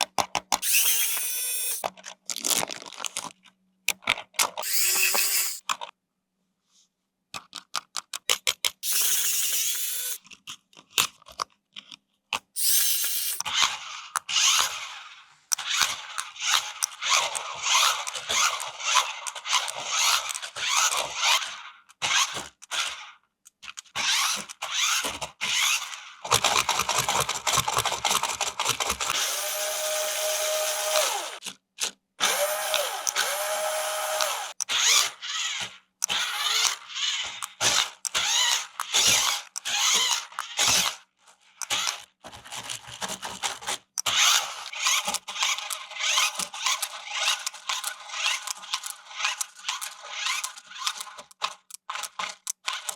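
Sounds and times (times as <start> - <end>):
plastic parts clicking and rubbing: 0.0 - 6.0, 7.3 - 14.8, 15.5 - 52.9
small electric motor whirring: 0.6 - 1.9, 4.6 - 5.6, 8.8 - 10.2, 12.6 - 23.1, 24.0 - 31.4, 32.2 - 41.0, 41.6 - 42.0, 44.0 - 52.9.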